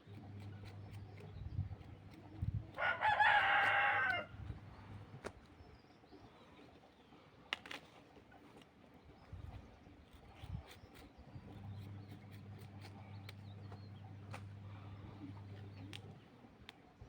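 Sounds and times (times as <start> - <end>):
rooster crowing: 2.8 - 4.3.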